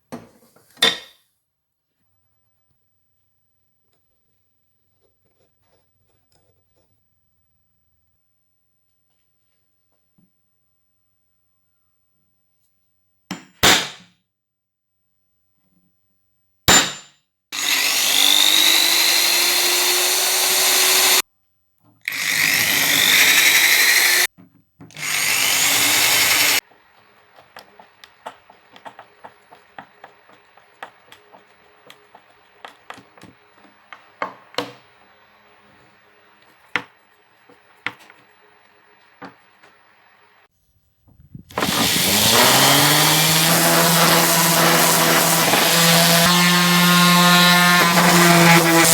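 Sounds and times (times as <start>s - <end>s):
power tool whining: 17.6s - 21.2s, 22.0s - 24.3s, 24.9s - 36.5s, 41.5s - 48.9s
clicks and taps: 26.9s - 34.8s.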